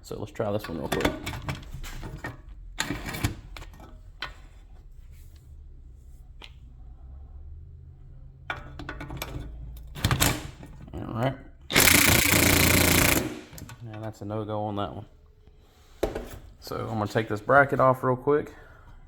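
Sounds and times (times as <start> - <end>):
impact wrench hammering: 11.7 - 13.8.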